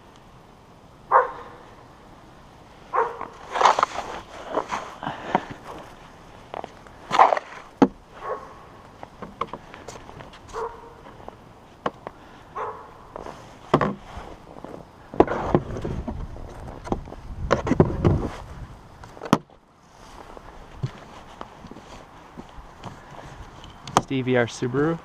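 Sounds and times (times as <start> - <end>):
footsteps crunching through snow: 2.9 - 8.7, 12.6 - 14.8, 19.8 - 23.6.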